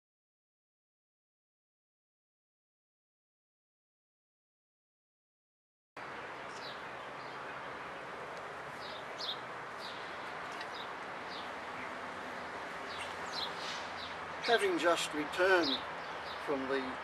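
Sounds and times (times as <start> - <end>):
outdoor background hiss: 6.0 - 17.0
small birds chirping: 6.0 - 17.0.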